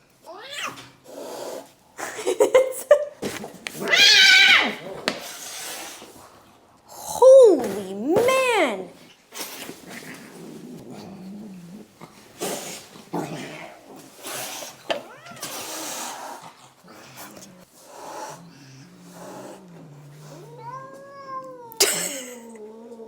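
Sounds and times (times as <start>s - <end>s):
cats hissing: 0.3s - 2.4s, 3.2s - 6.6s, 7.6s - 23.0s
cat growling: 0.6s - 1.8s, 3.7s - 5.8s, 9.9s - 23.0s
cat yowling: 3.8s - 4.8s, 20.5s - 21.8s.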